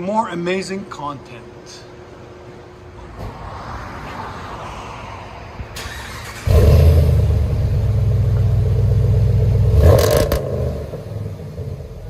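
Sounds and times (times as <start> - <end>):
engine revving: 5.8 - 11.9.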